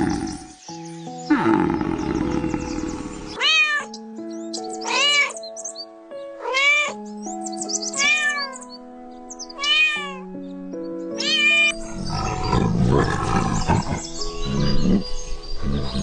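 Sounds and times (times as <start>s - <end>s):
low rough roar: 1.3s - 3.4s, 11.9s - 16.0s
cat meowing: 3.4s - 3.9s, 4.8s - 5.4s, 6.4s - 7.0s, 8.0s - 8.6s, 9.6s - 10.3s, 11.2s - 11.8s.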